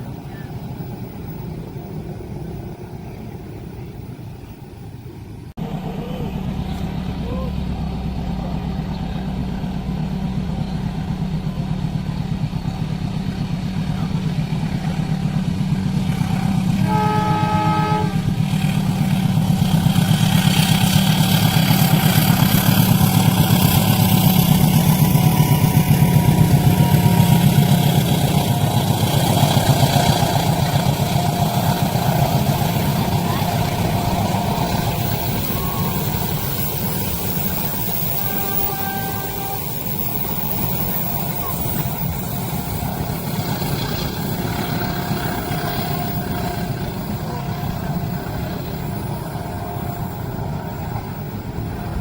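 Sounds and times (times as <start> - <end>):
diesel engine drone: 0.0 - 52.0
train wheels rumbling on rails: 0.0 - 52.0
train horn blast: 16.1 - 22.4, 23.5 - 36.7, 37.4 - 42.3, 42.9 - 52.0.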